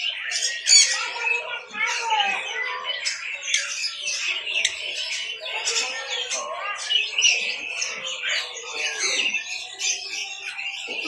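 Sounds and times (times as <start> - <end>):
caged birds chirping and squawking: 0.0 - 11.0.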